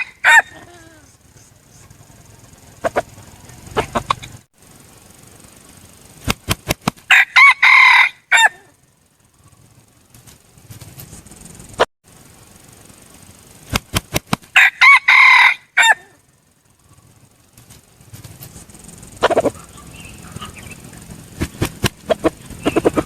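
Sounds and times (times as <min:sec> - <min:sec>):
rooster crowing: 0:00.0 - 0:01.1, 0:07.1 - 0:08.8, 0:14.6 - 0:16.2
rooster wings flapping: 0:00.0 - 0:04.5, 0:05.1 - 0:08.8, 0:09.4 - 0:11.9, 0:13.1 - 0:16.2, 0:16.8 - 0:23.0.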